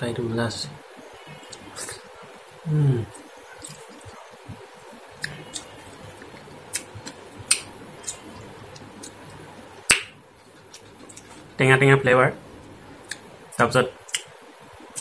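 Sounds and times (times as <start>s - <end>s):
person chewing with lip smacks: 3.1s - 4.2s, 5.2s - 10.0s.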